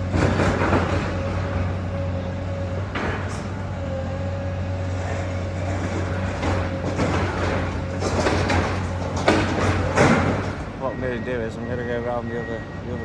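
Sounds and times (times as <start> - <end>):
sharp knocks and clatters: 0.0 - 1.4, 2.8 - 3.6, 5.6 - 10.7
excavator diesel engine humming: 0.0 - 13.0.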